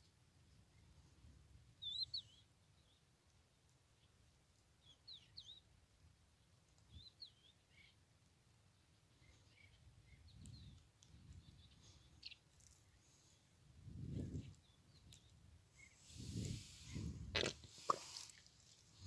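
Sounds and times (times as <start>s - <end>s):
bird chirps: 1.8s - 3.0s, 4.8s - 5.7s
wind rumble on microphone: 9.8s - 11.8s, 13.7s - 17.8s.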